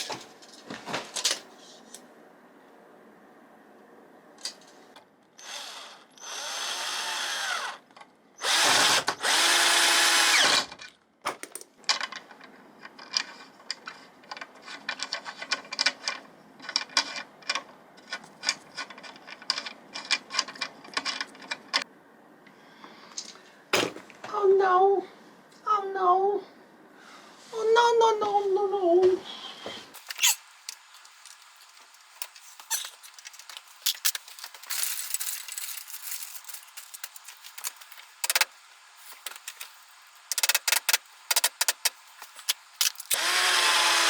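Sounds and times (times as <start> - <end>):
power drill running: 5.4 - 7.8, 8.4 - 10.7, 43.1 - 44.0.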